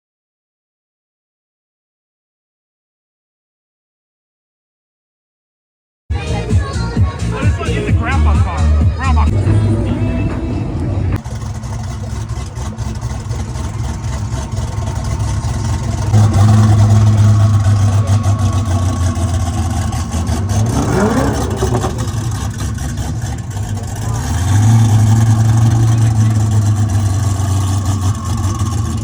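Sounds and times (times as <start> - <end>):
car engine humming: 6.1 - 29.0.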